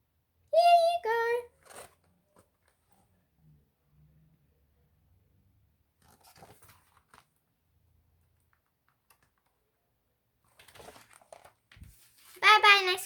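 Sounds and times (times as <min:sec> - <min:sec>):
faint clicks and rustles: 0:01.5 - 0:03.3, 0:06.0 - 0:13.0.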